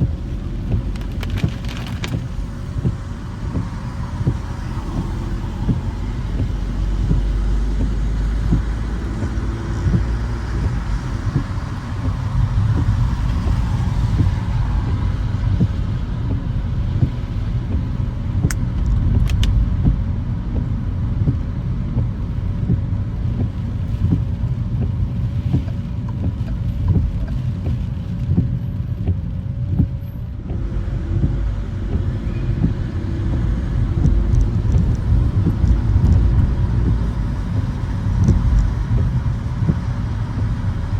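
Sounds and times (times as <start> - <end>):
car engine and road rumble: 0.0 - 40.9
sharp clicks: 18.4 - 19.6.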